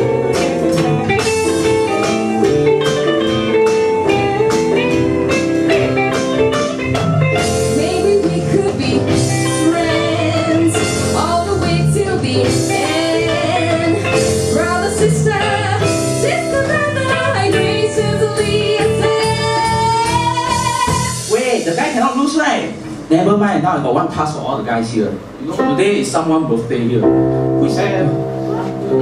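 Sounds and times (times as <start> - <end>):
electric guitar: 0.0 - 21.3, 27.0 - 29.0
live band playing pop song: 0.0 - 23.1.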